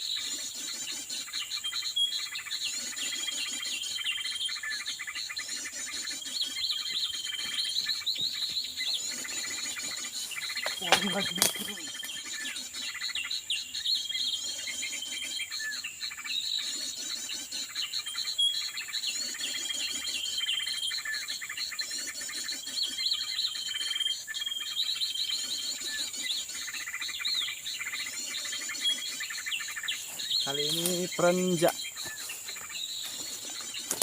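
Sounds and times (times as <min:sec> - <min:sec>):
small birds chirping: 0:00.0 - 0:34.0
high-pitched insect drone: 0:08.6 - 0:22.5, 0:25.4 - 0:34.0.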